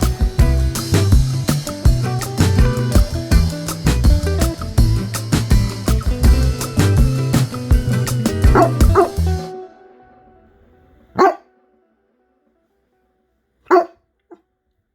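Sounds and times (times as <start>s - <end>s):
background music with steady beat: 0.0s - 9.9s
dog barking sharply: 11.2s - 11.5s, 13.7s - 14.0s.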